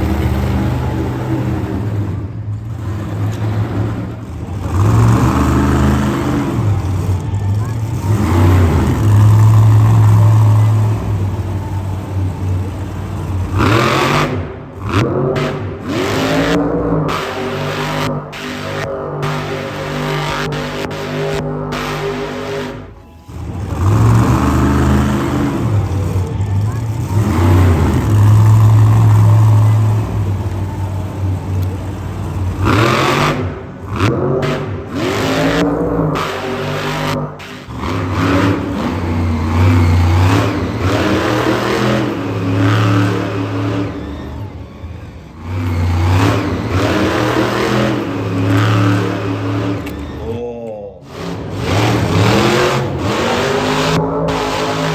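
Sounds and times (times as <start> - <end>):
engine humming and revving: 0.0 - 54.9.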